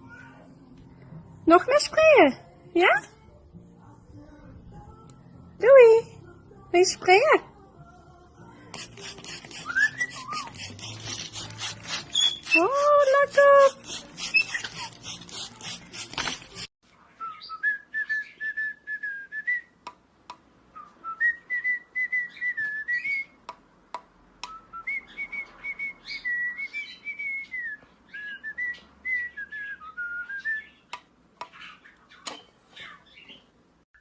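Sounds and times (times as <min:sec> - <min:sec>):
parrot whistling a tune: 0:09.6 - 0:10.6, 0:12.1 - 0:13.0, 0:14.3 - 0:14.8, 0:17.2 - 0:19.7, 0:20.8 - 0:23.4, 0:24.5 - 0:30.9.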